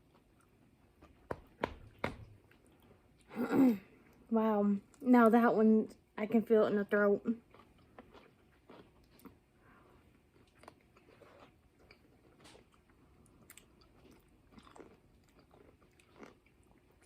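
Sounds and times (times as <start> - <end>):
chewing crunchy pickle: 6.4 - 17.0.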